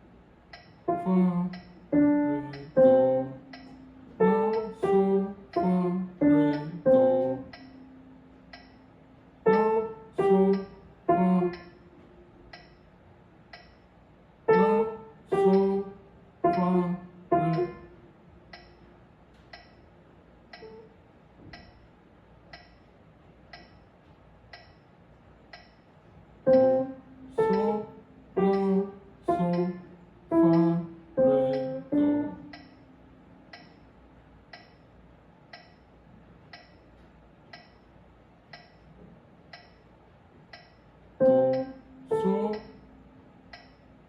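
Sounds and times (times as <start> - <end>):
metronome ticking: 0.5 - 8.8, 9.4 - 11.8, 12.5 - 12.8, 13.5 - 13.8, 14.5 - 17.8, 18.5 - 18.8, 19.5 - 19.8, 20.5 - 20.8, 21.5 - 21.8, 22.5 - 22.8, 23.5 - 23.8, 24.5 - 24.8, 25.5 - 25.8, 26.5 - 33.8, 34.5 - 34.8, 35.5 - 35.8, 36.5 - 36.9, 37.5 - 37.9, 38.5 - 38.9, 39.5 - 39.9, 40.5 - 42.8, 43.5 - 43.8
soft piano notes: 0.8 - 12.9, 14.4 - 19.8, 20.6 - 21.8, 26.4 - 34.1, 41.1 - 44.0.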